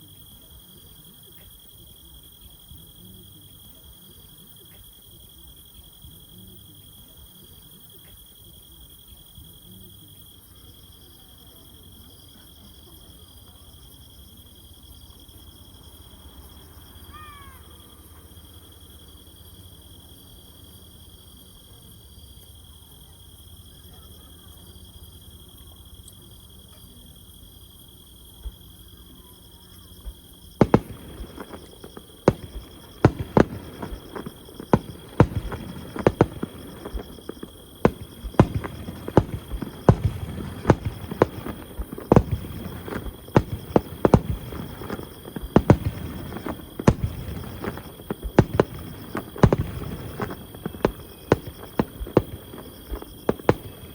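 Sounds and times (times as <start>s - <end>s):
fireworks bangs: 30.0s - 53.9s.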